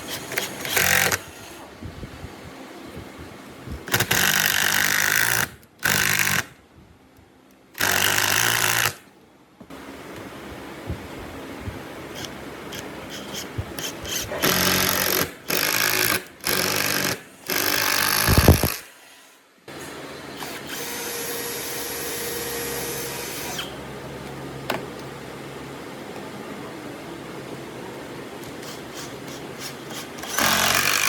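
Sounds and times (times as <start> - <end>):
power tool working wood: 13.1 - 18.8.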